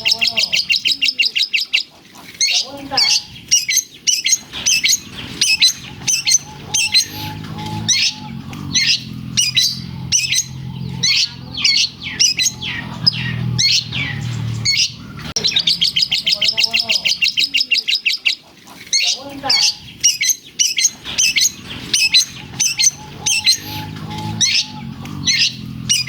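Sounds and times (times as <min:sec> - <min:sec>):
bird singing high chirps and trills: 0:00.0 - 0:26.0
low hum: 0:04.4 - 0:17.4, 0:20.8 - 0:26.0.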